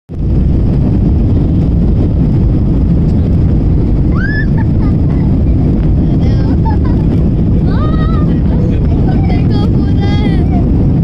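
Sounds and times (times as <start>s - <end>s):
airplane engines rumbling: 0.1s - 11.0s
person's voice: 6.0s - 6.9s, 7.6s - 10.7s.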